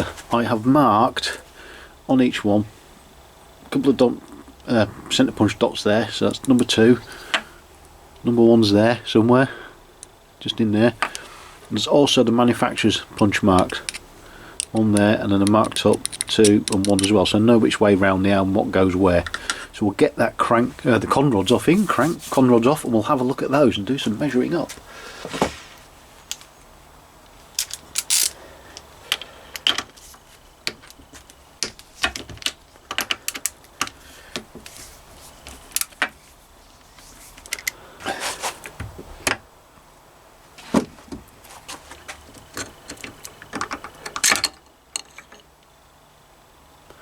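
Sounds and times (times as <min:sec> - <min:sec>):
metal tools clinking and knocking: 0:27.6 - 0:28.4.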